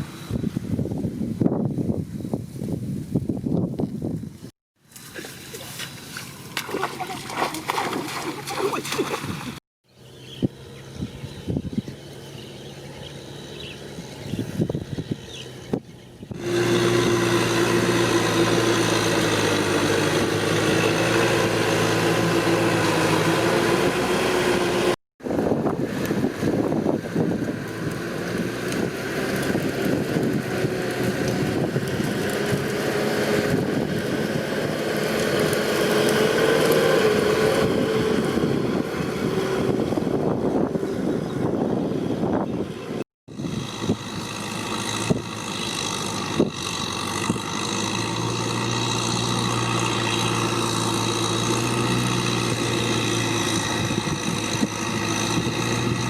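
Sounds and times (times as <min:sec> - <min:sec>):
tractor engine running: 0:10.5 - 0:56.0.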